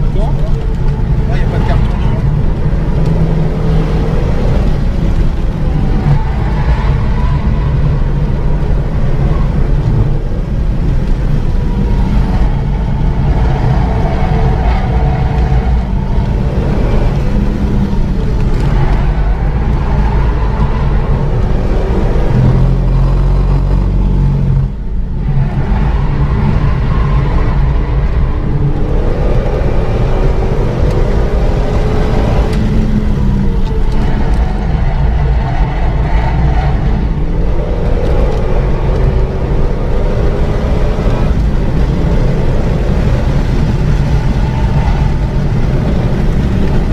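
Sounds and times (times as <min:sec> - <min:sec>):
car engine running hard: 0:00.0 - 0:46.9.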